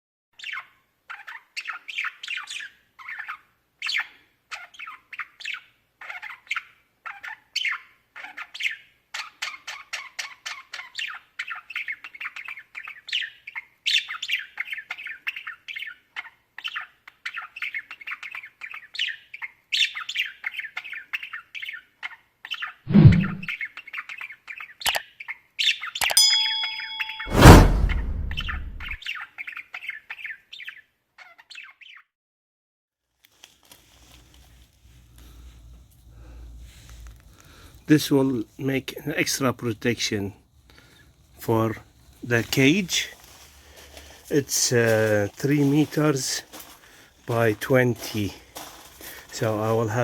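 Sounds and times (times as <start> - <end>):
budgerigars chattering and chirping: 0.4 - 22.8
loud thump: 22.9 - 23.5, 27.2 - 29.0.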